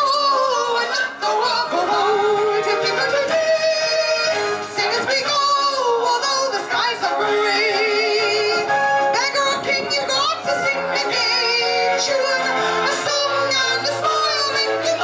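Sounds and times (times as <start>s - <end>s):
musical accompaniment: 0.0s - 15.0s
woman singing with vibrato: 0.0s - 15.0s.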